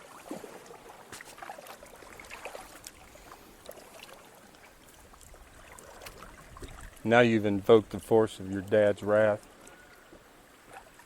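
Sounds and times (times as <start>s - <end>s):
creek water trickling: 0.0s - 11.0s
small clicks and drips: 0.6s - 7.1s.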